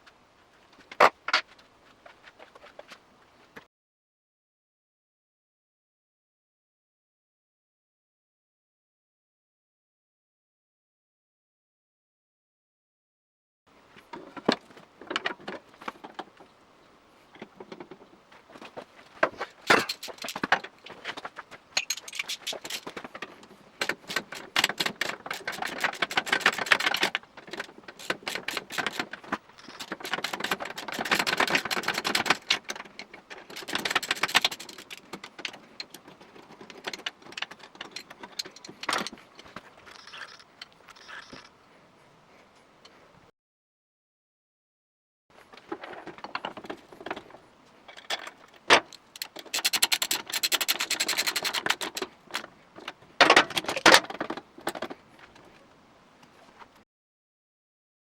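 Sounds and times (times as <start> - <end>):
metal tools clinking and knocking: 19.6 - 41.5
rapid clicking: 48.9 - 52.1.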